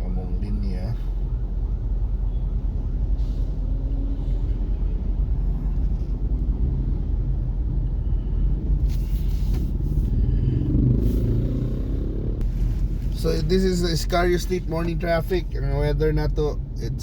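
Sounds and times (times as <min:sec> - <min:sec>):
traffic engines rumbling: 0:00.0 - 0:17.0
rushing hiss of passing vehicle: 0:08.9 - 0:13.1.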